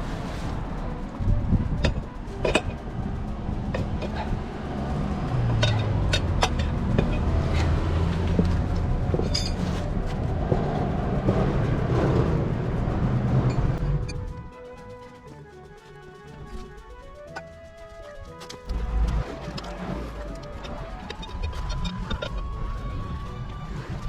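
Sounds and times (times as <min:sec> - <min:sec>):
background music with low notes: 0:00.0 - 0:24.0
sharp clicks and knocks: 0:05.3 - 0:12.5.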